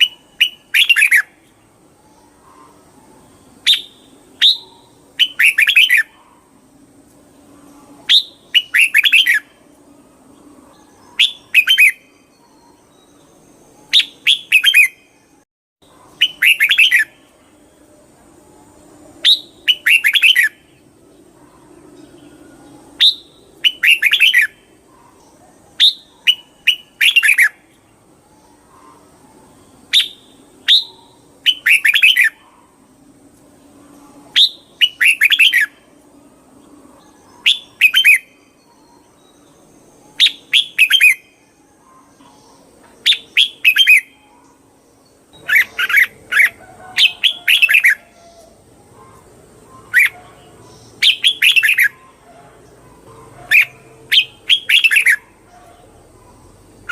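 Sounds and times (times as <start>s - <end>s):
bulbul whistled song: 0.0s - 6.4s, 7.7s - 9.7s, 10.7s - 17.4s, 19.2s - 20.8s, 22.8s - 24.7s, 25.7s - 27.7s, 29.7s - 32.7s, 34.0s - 35.9s, 37.1s - 44.5s, 45.3s - 50.2s, 51.0s - 52.2s, 53.5s - 55.7s.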